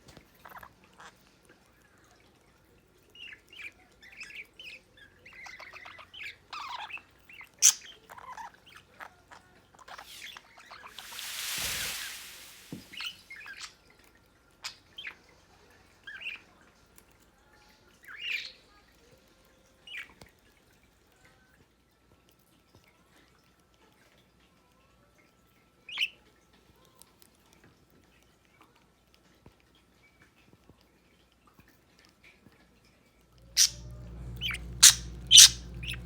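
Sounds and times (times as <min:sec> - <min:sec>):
brief rushing noise: 0:10.1 - 0:13.2
budgerigars chirping: 0:33.5 - 0:36.0.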